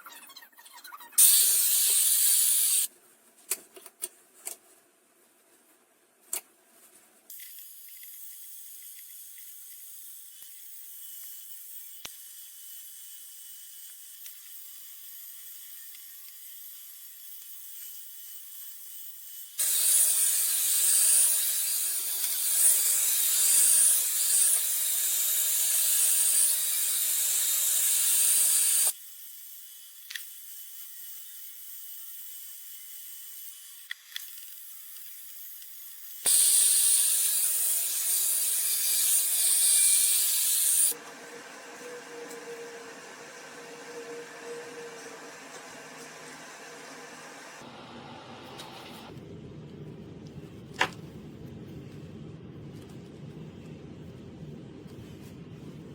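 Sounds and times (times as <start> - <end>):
hair dryer blowing: 40.9 - 49.1.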